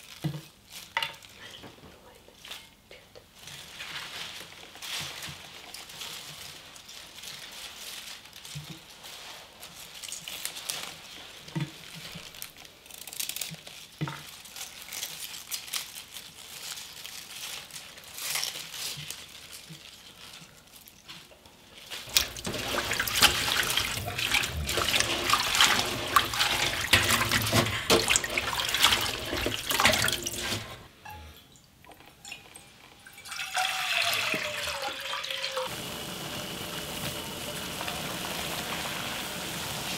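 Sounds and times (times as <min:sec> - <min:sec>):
running tap water splashing: 0:22.1 - 0:30.9, 0:33.2 - 0:39.9
water poured into metal pot: 0:22.1 - 0:30.9, 0:32.2 - 0:35.8.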